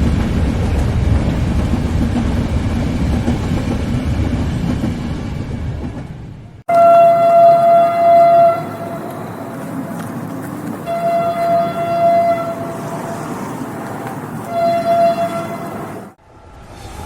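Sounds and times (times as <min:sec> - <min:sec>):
moving train rumble: 0:00.0 - 0:17.0
train horn blasts: 0:06.7 - 0:09.2, 0:10.8 - 0:13.2, 0:14.4 - 0:15.8.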